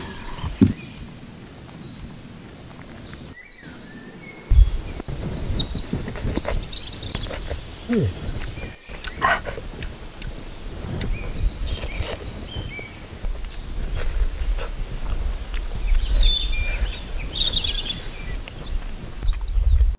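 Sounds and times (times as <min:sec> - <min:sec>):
small birds chirping: 0:00.0 - 0:19.9
biting and chewing food: 0:05.0 - 0:19.9.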